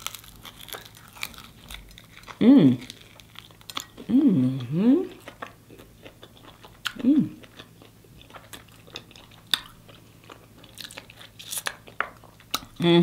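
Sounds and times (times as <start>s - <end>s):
crunchy chewing: 0.0s - 12.8s
person humming mm: 4.0s - 5.2s, 7.0s - 7.4s.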